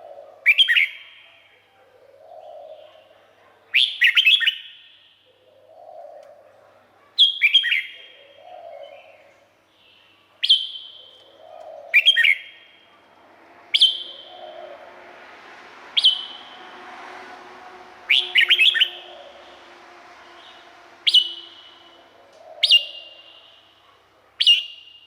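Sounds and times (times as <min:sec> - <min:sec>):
bulbul singing: 0:10.4 - 0:23.8.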